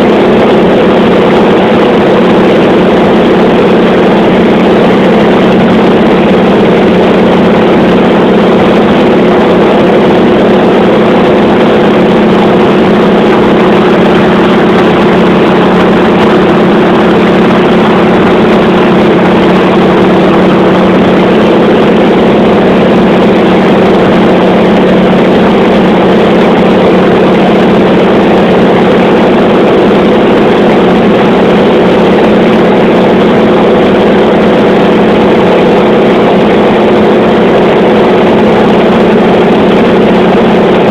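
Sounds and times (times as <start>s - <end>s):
aircraft engine drone: 0.0s - 40.9s.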